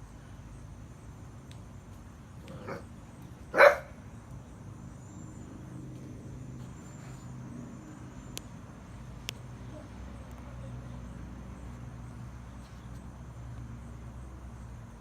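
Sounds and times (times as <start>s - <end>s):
bulldog barking: 2.5s - 2.9s, 3.5s - 4.0s.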